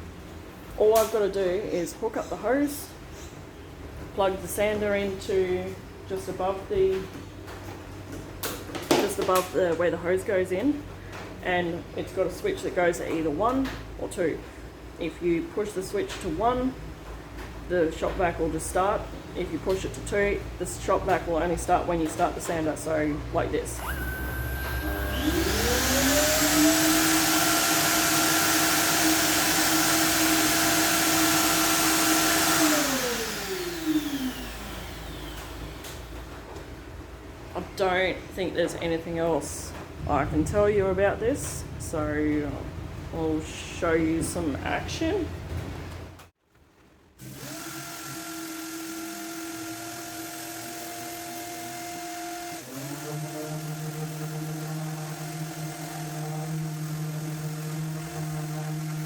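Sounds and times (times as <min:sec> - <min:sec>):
shop vacuum motor running: 0:23.6 - 0:36.3, 0:47.2 - 0:59.0
orbital sander whining: 0:23.8 - 0:36.1, 0:47.2 - 0:59.0.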